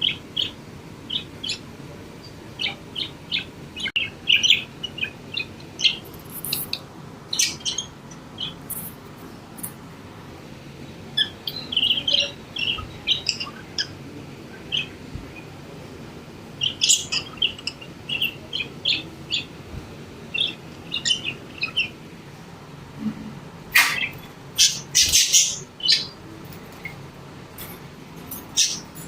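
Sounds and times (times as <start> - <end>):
budgerigars chirping: 2.6 - 8.8, 11.1 - 14.0, 16.6 - 19.5, 20.3 - 22.0, 23.8 - 26.2, 28.5 - 29.0.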